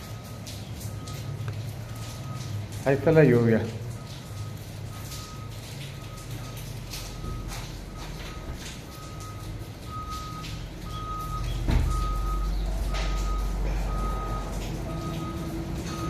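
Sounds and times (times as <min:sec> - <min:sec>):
backup alarm beeping: 0:00.1 - 0:16.0
heavy engine running: 0:03.9 - 0:16.0.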